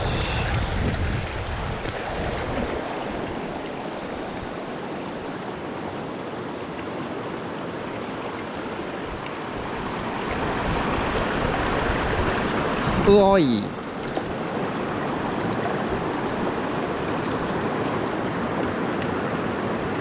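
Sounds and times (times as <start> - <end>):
stream rushing over rocks: 2.0 - 20.0
faint high ticks: 9.1 - 9.4.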